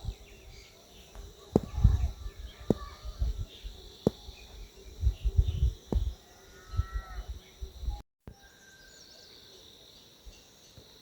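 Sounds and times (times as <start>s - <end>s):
insects chirring: 0.0s - 11.0s
low thumps: 1.5s - 6.2s.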